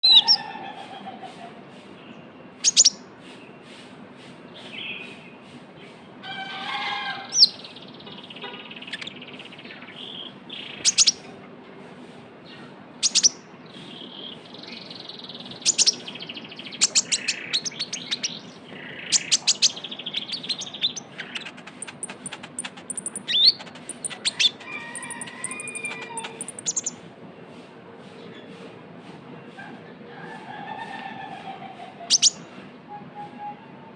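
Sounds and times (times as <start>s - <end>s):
sunbird singing: 2.1s - 3.1s, 7.2s - 11.3s, 12.6s - 27.0s, 32.1s - 32.5s.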